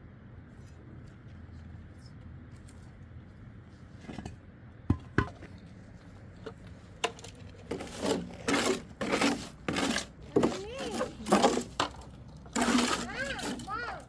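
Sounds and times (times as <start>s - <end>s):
objects clattering and scraping: 4.0s - 5.6s, 6.4s - 14.0s.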